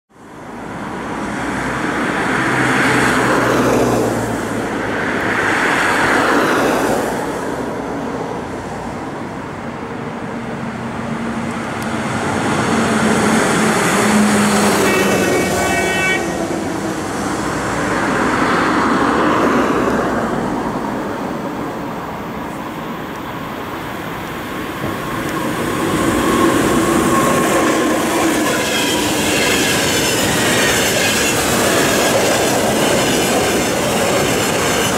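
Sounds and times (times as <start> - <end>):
train horn blast: 13.3 - 16.6
electric locomotive running: 22.6 - 34.9
wheels rolling on rails: 24.1 - 34.9.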